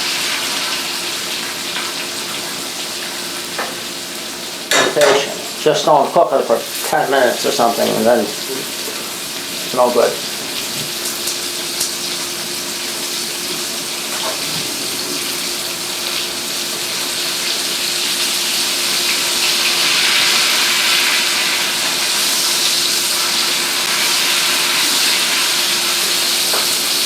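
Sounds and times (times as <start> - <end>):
chicken sizzling in a pan: 0.0 - 27.0.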